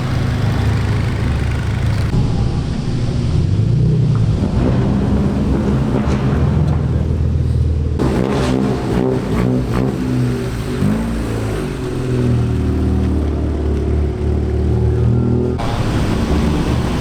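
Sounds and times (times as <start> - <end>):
car exhaust rumbling: 0.0 - 17.0
exhaust crackles: 0.0 - 17.0.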